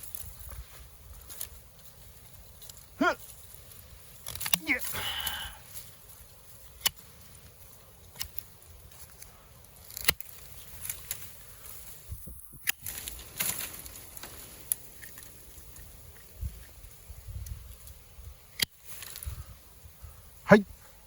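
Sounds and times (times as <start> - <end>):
pruning shears snipping: 4.0 - 5.4, 6.6 - 11.4.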